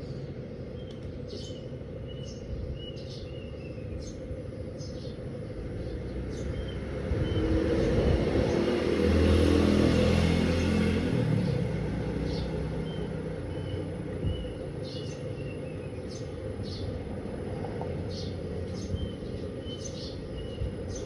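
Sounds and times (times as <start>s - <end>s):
birds chirping: 0.0s - 9.3s, 10.1s - 21.0s
motor vehicle passing by: 4.8s - 21.0s.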